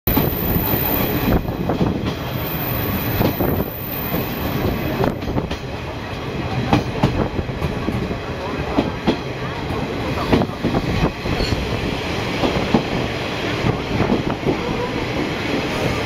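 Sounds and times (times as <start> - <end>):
wheels rumbling on rails: 0.1 - 16.0
clacks over rail joints: 6.5 - 10.8.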